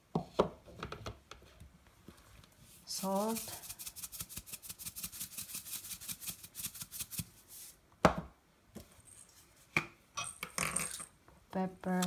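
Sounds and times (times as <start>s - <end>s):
salt shaker rattling: 2.9s - 7.7s.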